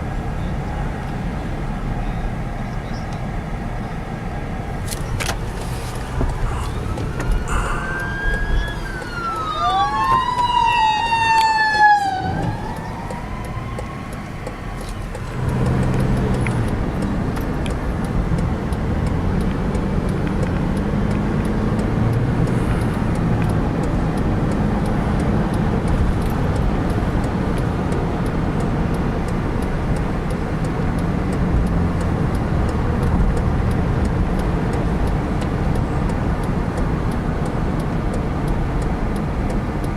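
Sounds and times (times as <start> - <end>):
car engine and road noise: 0.0 - 39.9
emergency siren wailing: 6.2 - 28.6.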